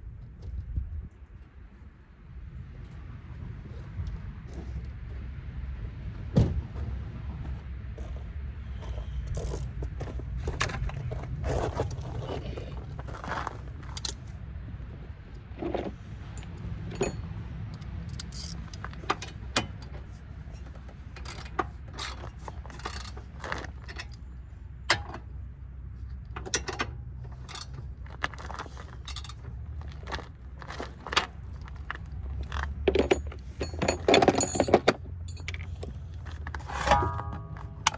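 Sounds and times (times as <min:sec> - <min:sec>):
metal tools clinking and ratcheting: 0:13.8 - 0:14.2, 0:16.4 - 0:24.3, 0:26.4 - 0:29.6, 0:32.5 - 0:37.9
steady low rumble: 0:35.2 - 0:37.9.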